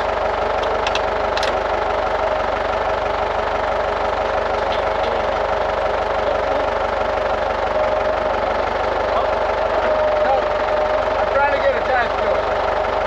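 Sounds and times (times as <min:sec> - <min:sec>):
engine running with whine: 0:00.0 - 0:13.0.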